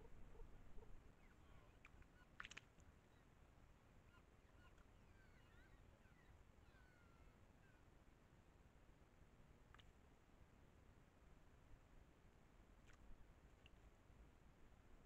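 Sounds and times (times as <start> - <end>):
distant bird chirps and whistles: 4.1 - 7.8.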